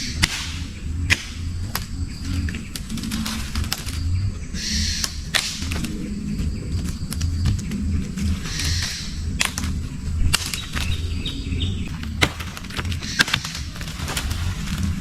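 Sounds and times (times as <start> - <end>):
birds chirping: 0.0 - 15.0
steady low rumble: 0.0 - 15.0
sharp snaps or knocks: 5.0 - 6.0.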